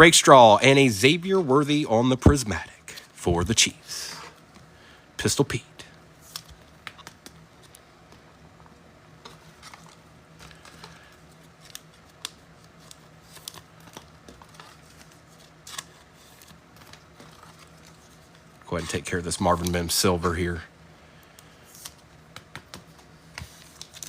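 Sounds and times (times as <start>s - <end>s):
cards and wrappers handled: 9.2s - 20.5s, 21.4s - 24.0s.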